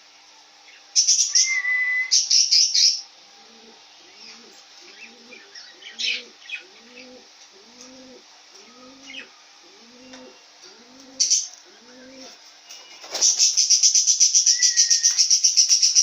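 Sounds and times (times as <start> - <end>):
bird cooing: 1.3 - 12.4, 14.4 - 15.2.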